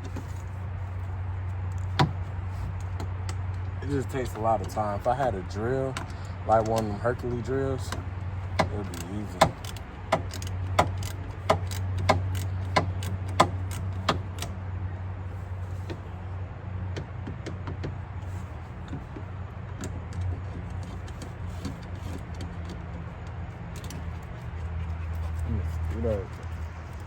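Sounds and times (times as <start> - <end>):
steady low hum: 0.0 - 27.0
hand tool clicking: 8.6 - 14.5.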